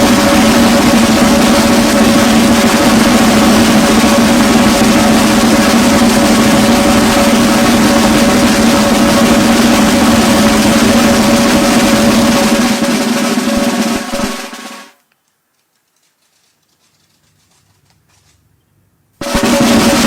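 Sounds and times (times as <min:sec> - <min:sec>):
steady held tone: 0:00.0 - 0:14.8, 0:19.2 - 0:20.0
drums with snare rolls: 0:00.0 - 0:15.0, 0:19.2 - 0:20.0.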